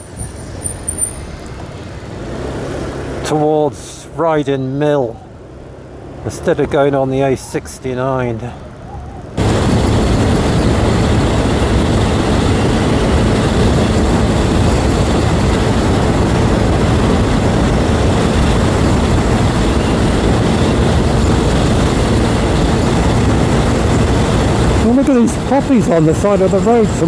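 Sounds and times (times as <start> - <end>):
motorbike engine running: 0.0 - 27.0
wind rush on microphone: 9.3 - 27.0.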